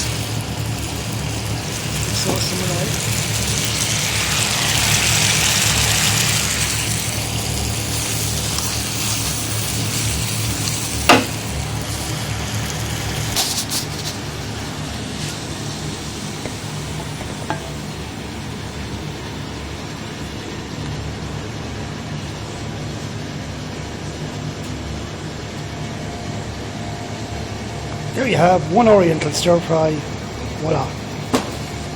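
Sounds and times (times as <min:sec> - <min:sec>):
food sizzling in a pan: 0:00.0 - 0:19.2
utensil striking pan: 0:11.0 - 0:11.4, 0:16.4 - 0:17.8.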